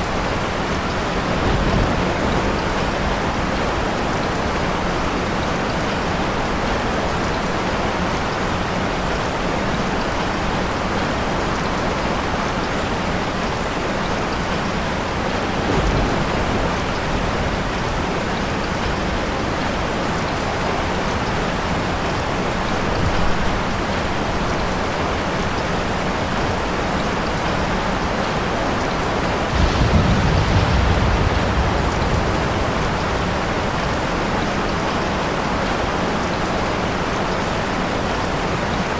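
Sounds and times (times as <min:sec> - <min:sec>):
thunder rumbling: 0:00.0 - 0:05.6, 0:14.9 - 0:20.6, 0:29.0 - 0:36.5
heavy rain falling: 0:00.0 - 0:38.9.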